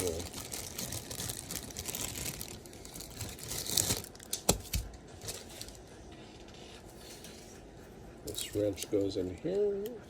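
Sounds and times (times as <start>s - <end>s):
packaging crinkling rustle: 0.0s - 5.8s.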